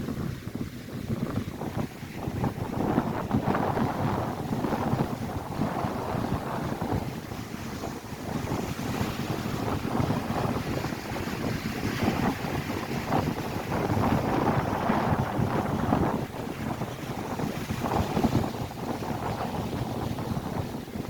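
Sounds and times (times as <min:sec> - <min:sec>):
lake waves breaking on shore: 0:00.0 - 0:21.0
wind buffeting microphone: 0:00.0 - 0:21.0.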